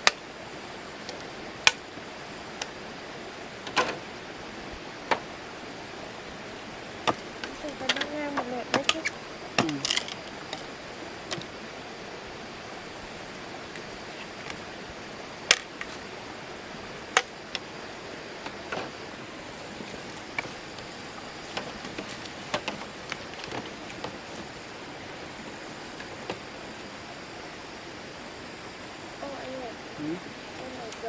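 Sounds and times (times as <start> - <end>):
steady hiss: 0.0 - 31.0.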